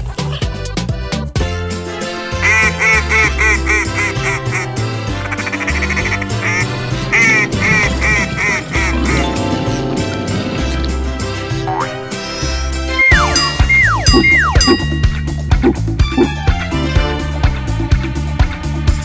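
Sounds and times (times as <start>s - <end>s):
duck quacking: 2.3s - 9.3s, 15.6s - 16.3s
music with bass beat: 12.9s - 17.1s.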